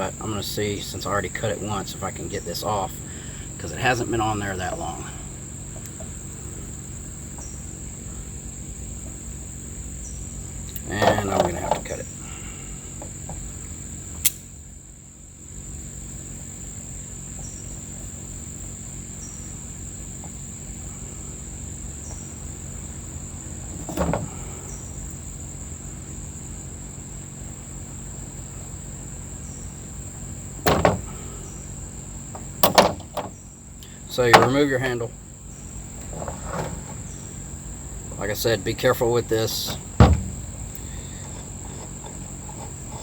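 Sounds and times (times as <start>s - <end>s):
crickets chirping: 0.0s - 43.0s
clicks and knocks on starter: 10.7s - 12.1s, 23.7s - 24.4s, 30.6s - 31.4s, 32.3s - 33.4s, 39.5s - 43.0s.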